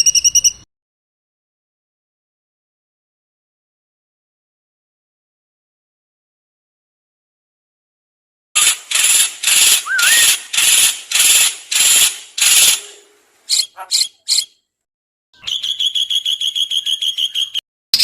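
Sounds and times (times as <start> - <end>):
buzzing bird rattle: 8.6 - 13.0
harsh rasping bird notes: 8.6 - 14.6
short bird chips: 8.6 - 14.6.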